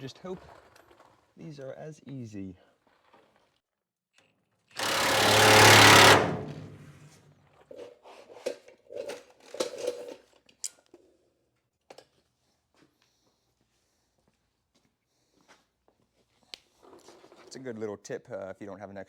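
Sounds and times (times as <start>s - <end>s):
power tool loosening bolt: 4.8s - 7.0s.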